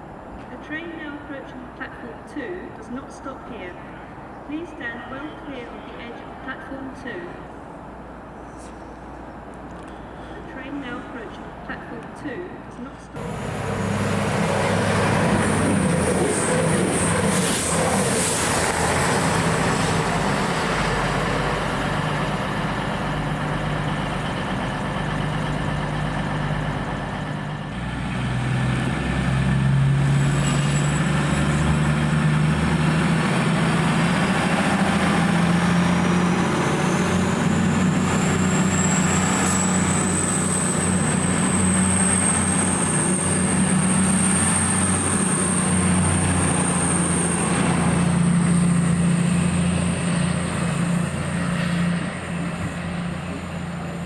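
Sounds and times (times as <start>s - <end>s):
diesel train engine droning: 0.0s - 54.0s.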